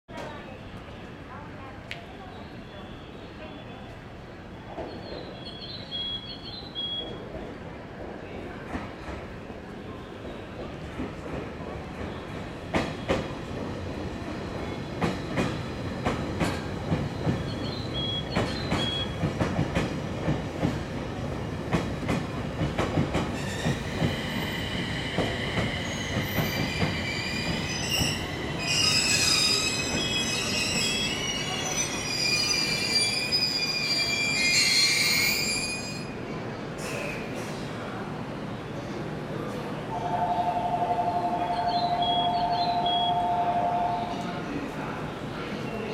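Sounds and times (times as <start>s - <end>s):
high-pitched wheel squeal: 25.8s - 36.1s.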